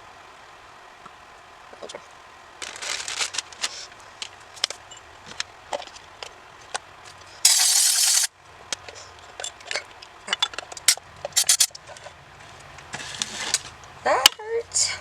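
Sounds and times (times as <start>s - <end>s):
aerosol can spraying: 7.5s - 8.3s, 11.4s - 11.7s
metal parts clicking and rattling: 9.3s - 11.8s.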